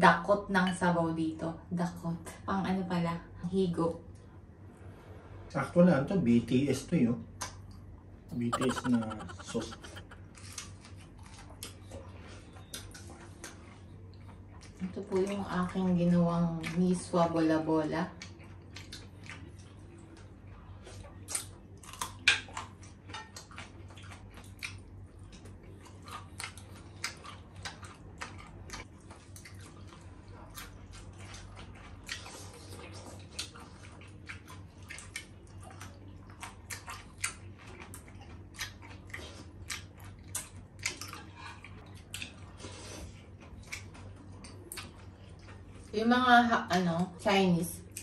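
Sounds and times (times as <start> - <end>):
chewing: 8.5 - 17.2, 18.2 - 46.0.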